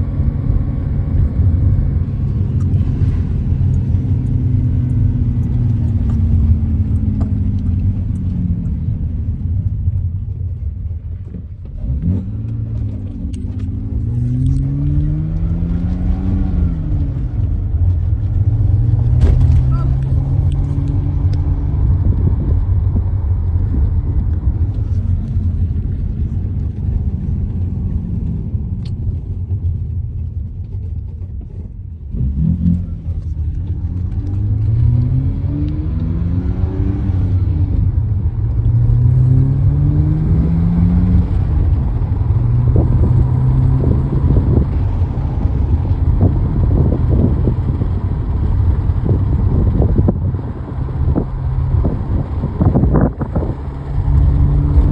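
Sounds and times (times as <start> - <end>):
car engine and road noise: 0.0 - 54.9.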